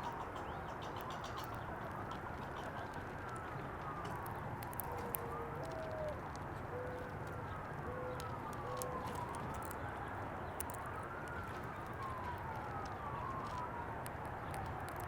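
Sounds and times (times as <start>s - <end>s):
distant siren wailing: 0.0s - 15.0s
dove cooing: 4.8s - 9.2s.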